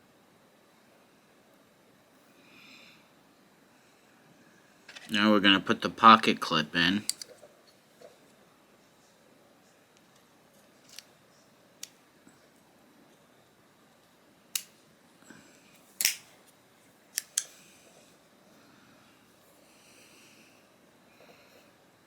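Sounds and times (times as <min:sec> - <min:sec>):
small metal clicks and taps: 0:07.1 - 0:07.3.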